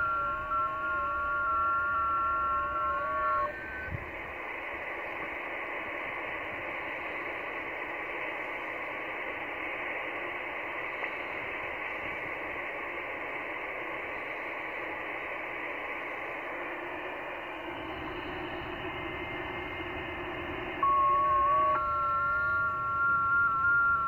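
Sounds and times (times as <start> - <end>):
radio band hiss: 0.0 - 24.0
data tones: 20.8 - 24.0.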